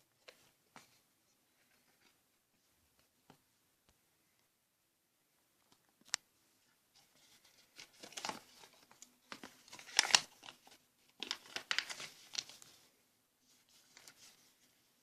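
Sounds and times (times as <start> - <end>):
paper crinkling and rustling: 7.0 - 12.9, 13.5 - 15.0.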